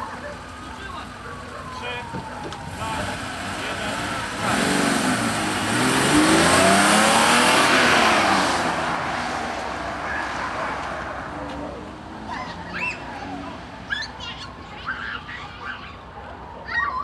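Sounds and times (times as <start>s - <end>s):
car accelerating through gears: 2.3s - 13.8s.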